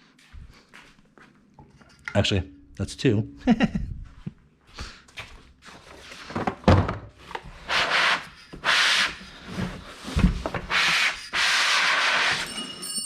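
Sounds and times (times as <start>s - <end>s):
rubbing and scraping strokes: 7.6s - 12.7s.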